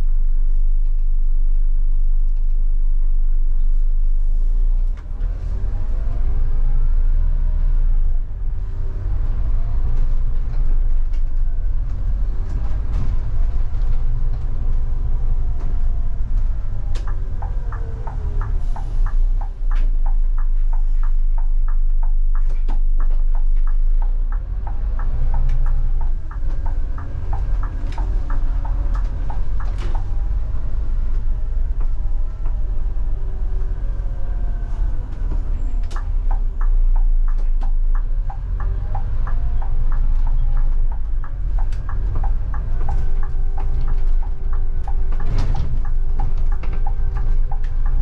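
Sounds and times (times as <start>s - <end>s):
bus diesel engine rumbling: 0.0s - 48.0s
regular ticking: 11.2s - 48.0s.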